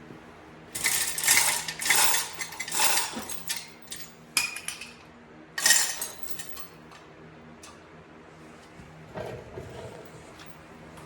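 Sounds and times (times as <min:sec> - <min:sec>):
metal tools clinking and clattering: 0:00.8 - 0:05.0, 0:05.6 - 0:06.8.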